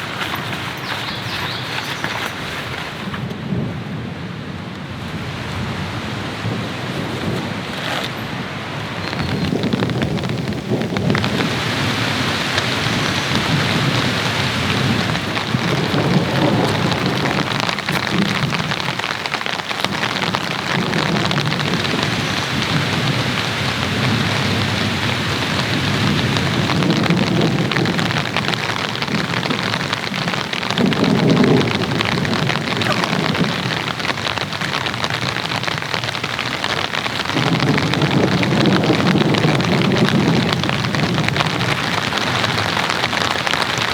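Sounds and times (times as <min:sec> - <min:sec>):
heavy rain: 0:00.0 - 0:43.9
low rumbles of thunder: 0:08.9 - 0:36.0, 0:36.9 - 0:43.9.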